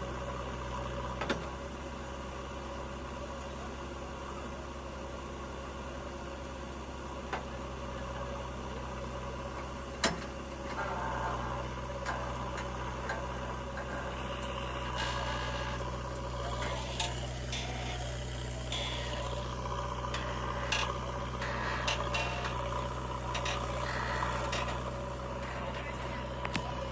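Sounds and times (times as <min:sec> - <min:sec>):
diesel engine running: 0:00.0 - 0:26.9
clicks: 0:13.8 - 0:26.9.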